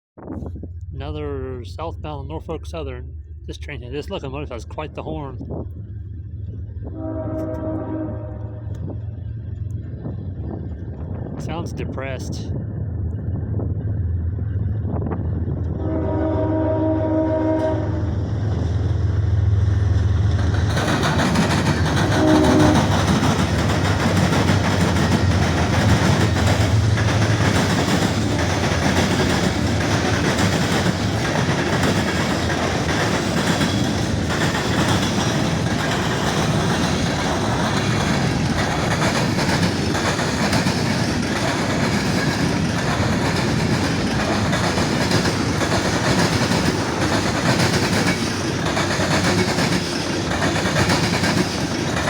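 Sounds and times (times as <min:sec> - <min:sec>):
locomotive engine drone: 0:00.2 - 0:52.0
train wheels clacking on rails: 0:18.5 - 0:52.0.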